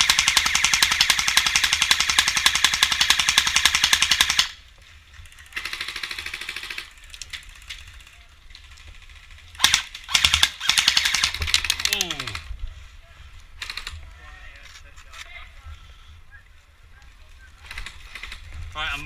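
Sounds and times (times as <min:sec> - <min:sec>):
airsoft gun firing bursts: 0:00.0 - 0:04.6, 0:05.5 - 0:07.0, 0:09.0 - 0:12.4.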